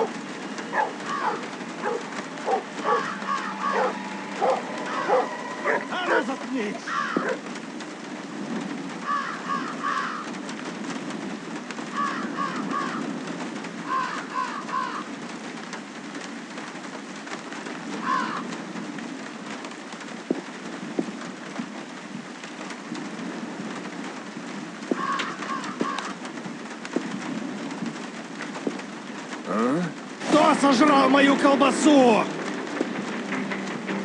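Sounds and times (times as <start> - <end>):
bird calls: 0.0 - 6.2, 24.9 - 26.2
low rushing noise: 0.0 - 6.9.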